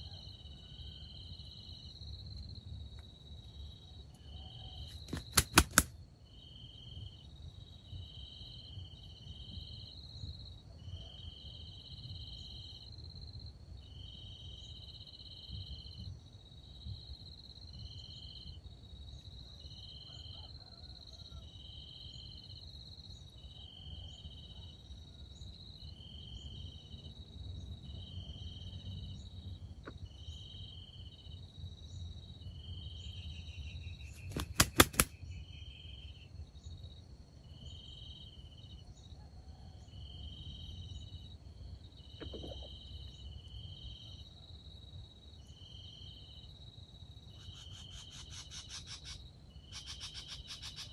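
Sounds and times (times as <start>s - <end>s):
cricket chirping: 0.0s - 50.9s
cricket high trill: 47.3s - 50.9s.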